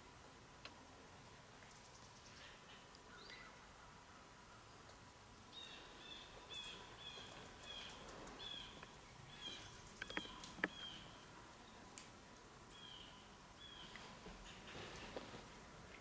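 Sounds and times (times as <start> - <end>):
small bird chirping: 5.6 - 11.8
sharp clicks: 9.6 - 10.9.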